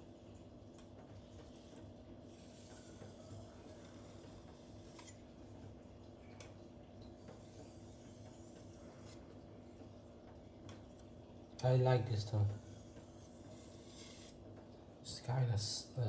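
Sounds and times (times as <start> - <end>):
blade scraping on whetstone: 7.4 - 9.2, 12.6 - 14.4.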